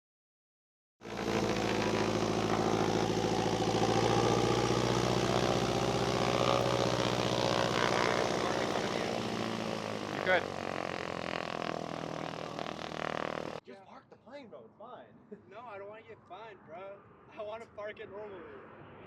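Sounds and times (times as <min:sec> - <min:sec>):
propeller airplane engine drone: 0:01.0 - 0:13.6.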